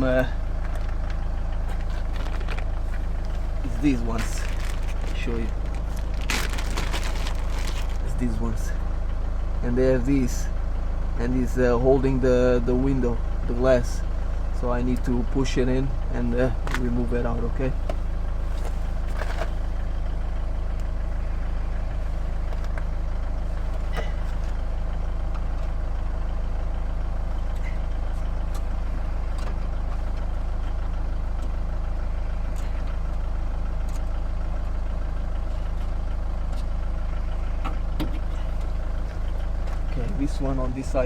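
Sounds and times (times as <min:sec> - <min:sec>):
low engine-like hum: 0:00.0 - 0:41.0.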